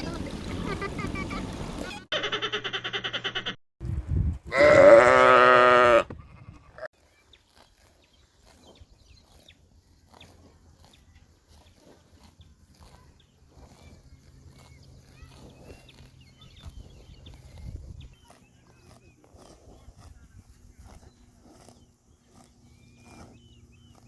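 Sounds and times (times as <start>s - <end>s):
goat bleating: 4.5s - 6.9s.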